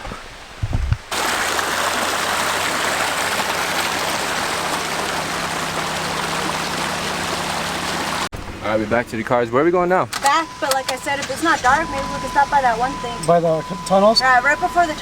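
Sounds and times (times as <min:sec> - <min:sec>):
rushing mountain stream: 0:00.0 - 0:08.3.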